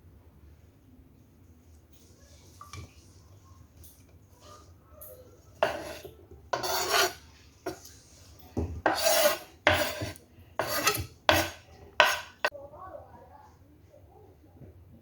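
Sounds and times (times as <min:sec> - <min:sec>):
rough rasping scraping strokes: 0:05.6 - 0:07.9, 0:08.8 - 0:12.5.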